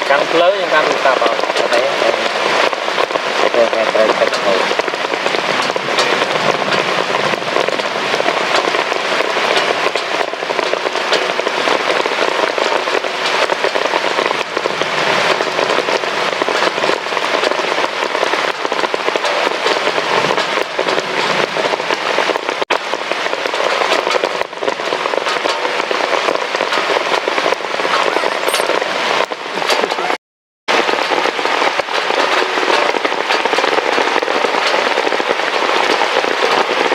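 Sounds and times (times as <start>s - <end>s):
heavy rain falling: 0.0s - 36.9s.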